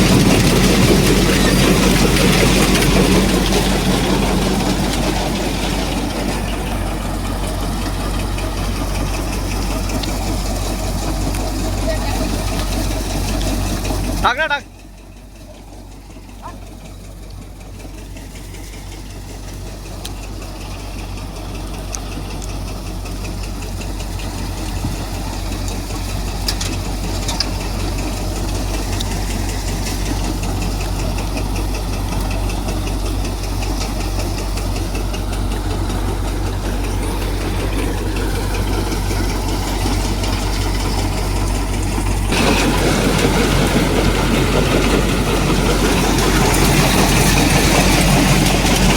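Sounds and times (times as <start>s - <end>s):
threshing machinery running: 0.0s - 48.9s.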